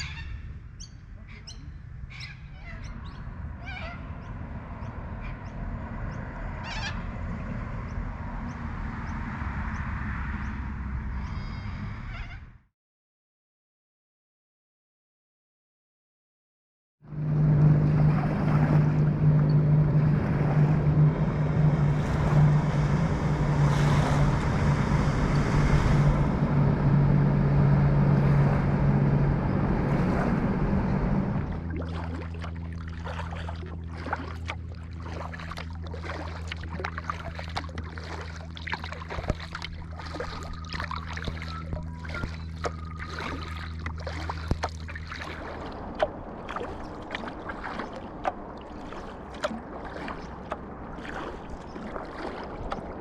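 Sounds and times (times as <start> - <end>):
boat motor humming: 0.0 - 12.6, 17.0 - 53.0
rushing water: 17.1 - 53.0
water splashes: 17.1 - 53.0.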